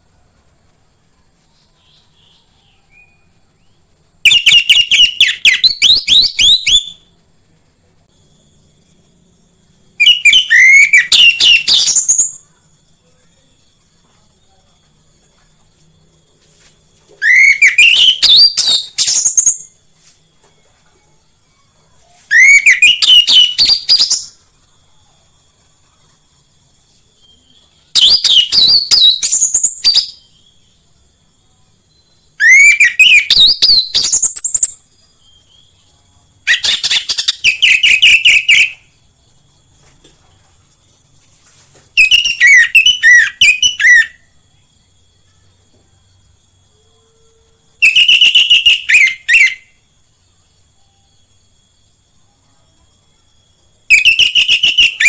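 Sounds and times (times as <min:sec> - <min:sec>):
thrush singing whistled notes: 0:01.8 - 0:07.1, 0:09.6 - 0:14.8, 0:17.1 - 0:20.5, 0:21.4 - 0:25.0, 0:26.6 - 0:39.4, 0:42.0 - 0:52.4, 0:53.1 - 0:55.0.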